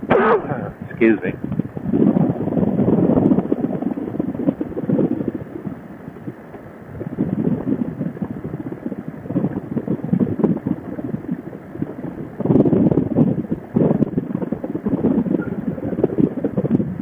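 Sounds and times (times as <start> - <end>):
wind buffeting helmet microphone: 0.0 - 17.0.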